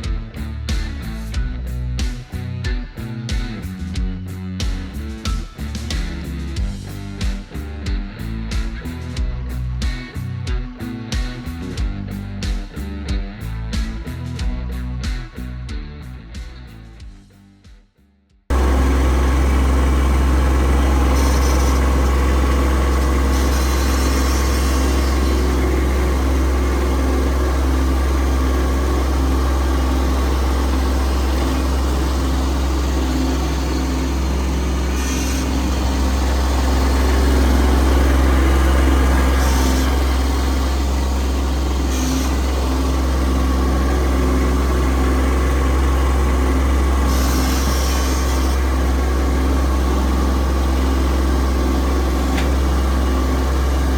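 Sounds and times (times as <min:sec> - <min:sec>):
tractor diesel engine running: 0:18.5 - 0:53.9.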